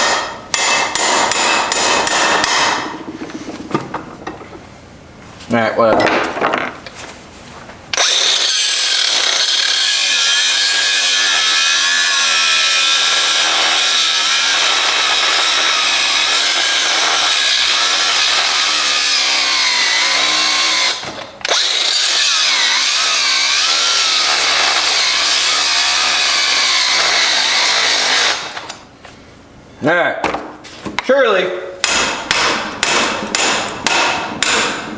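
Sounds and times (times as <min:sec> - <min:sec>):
grinder cutting steel: 0:08.0 - 0:28.8.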